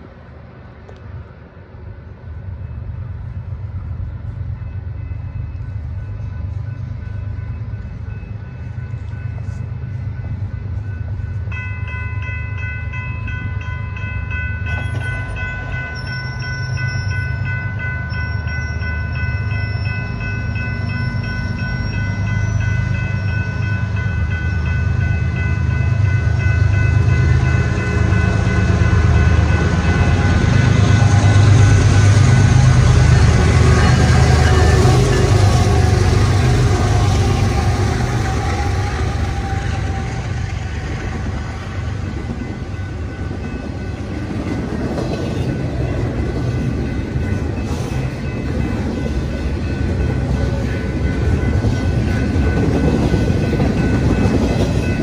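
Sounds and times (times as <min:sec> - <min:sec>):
diesel locomotives rumbling: 0:00.0 - 0:55.0
high ringing tones: 0:04.5 - 0:37.7.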